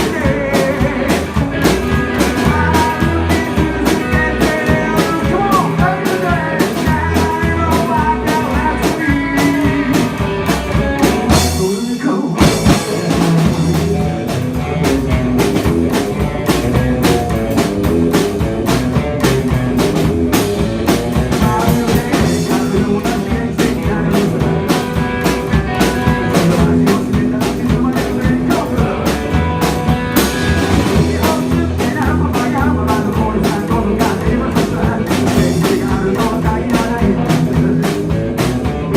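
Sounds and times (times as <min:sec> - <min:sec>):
rock music with guitar and drums: 0:00.0 - 0:38.9.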